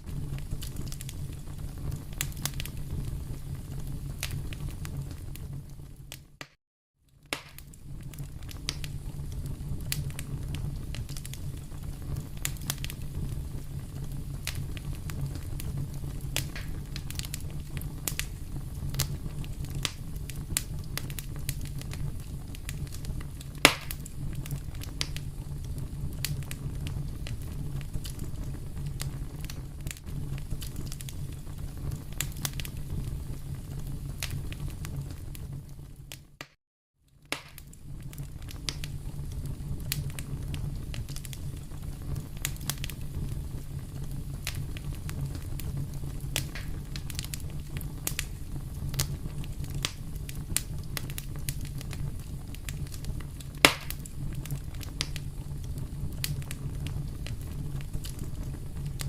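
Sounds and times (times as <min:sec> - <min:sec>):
fire flames rumbling: 0:00.0 - 0:06.5, 0:07.1 - 0:36.4, 0:37.2 - 0:59.0
fire crackles and pops: 0:00.0 - 0:59.0.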